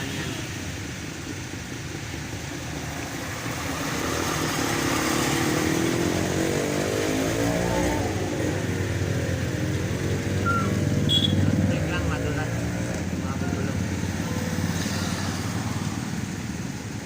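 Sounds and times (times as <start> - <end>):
vehicle engine revving: 0.0 - 17.0.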